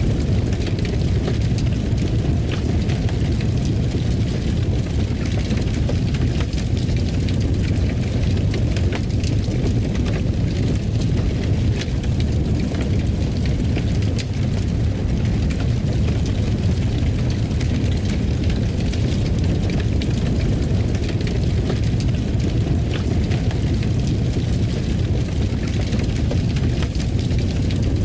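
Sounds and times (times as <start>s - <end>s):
fire crackling and popping: 0.0s - 28.0s
fire rumbling: 0.0s - 28.0s.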